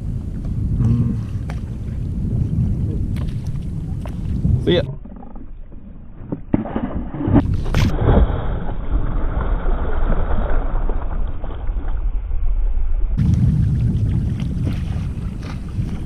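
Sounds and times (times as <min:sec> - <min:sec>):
loud splash: 0:06.6 - 0:12.2, 0:13.2 - 0:16.0
churning water: 0:13.2 - 0:16.0.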